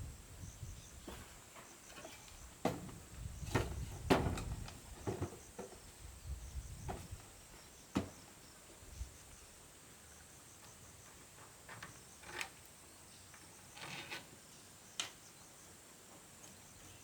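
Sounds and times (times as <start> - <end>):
crickets chirping: 0.0 - 17.0
wood knocks and thuds: 2.0 - 5.8, 6.7 - 7.2, 7.9 - 8.3.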